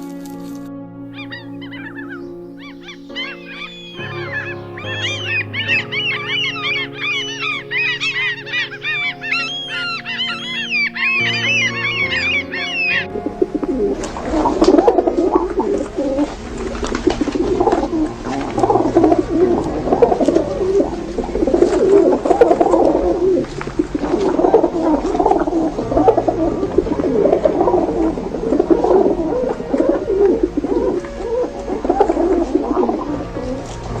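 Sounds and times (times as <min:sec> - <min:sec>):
flock of birds calling: 0:01.1 - 0:26.3.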